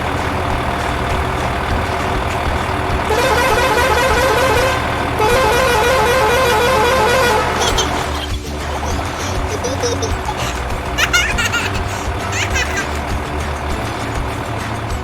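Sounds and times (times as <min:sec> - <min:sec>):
vehicle engine rumbling: 0:00.0 - 0:15.0
fast-warbling vehicle horn: 0:03.1 - 0:08.2.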